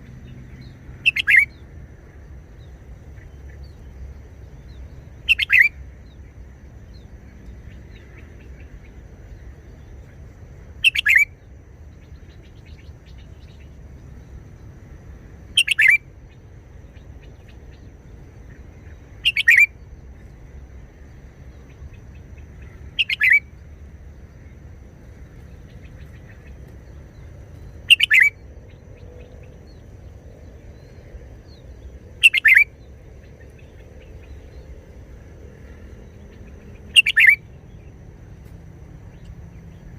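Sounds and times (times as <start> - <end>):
faint low hum: 0.0 - 39.9
bird singing short phrases: 0.6 - 1.6, 4.6 - 5.8, 10.8 - 11.4, 15.6 - 16.0, 18.5 - 19.8, 22.2 - 23.5, 25.6 - 29.8, 31.5 - 34.6, 36.0 - 38.0.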